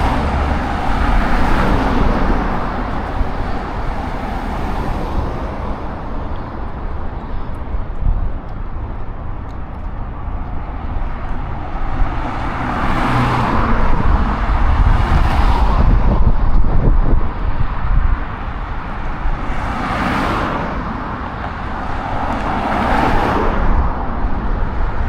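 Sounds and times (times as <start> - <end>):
vehicle passing close by: 0.0 - 5.8, 11.1 - 25.0
city road traffic: 0.0 - 25.0.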